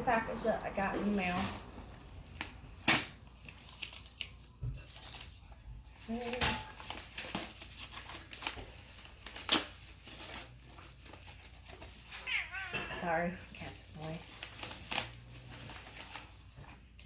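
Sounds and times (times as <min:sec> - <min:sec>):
packaging crinkling and tearing: 0:02.3 - 0:12.7, 0:13.8 - 0:17.0.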